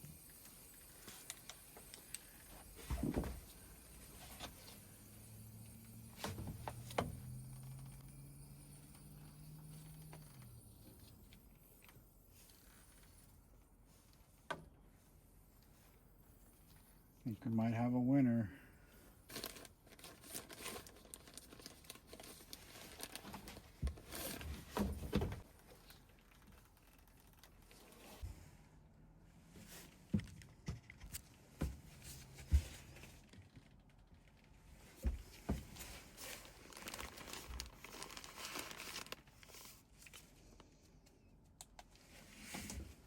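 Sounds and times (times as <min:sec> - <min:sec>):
crinkling and rustling material: 0:19.2 - 0:28.5, 0:29.4 - 0:43.0.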